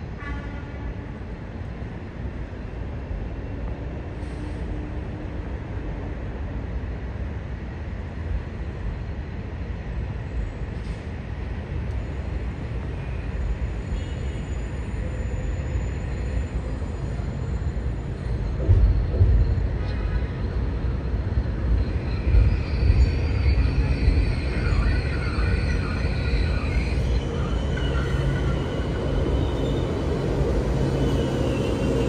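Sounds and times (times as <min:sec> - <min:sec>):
train rumbling on rails: 0:00.0 - 0:32.0
wheels squealing: 0:21.4 - 0:32.0.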